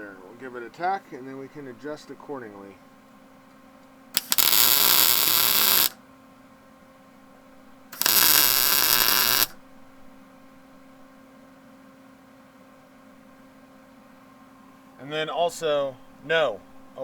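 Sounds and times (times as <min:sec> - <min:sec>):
welder arc hissing and crackling: 0:04.2 - 0:06.0, 0:08.0 - 0:09.6.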